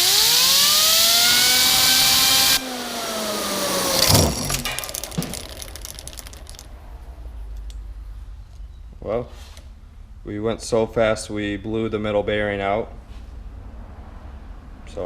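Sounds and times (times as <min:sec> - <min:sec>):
bearing bursting: 0:03.7 - 0:07.8
rattling clicks: 0:03.9 - 0:06.8.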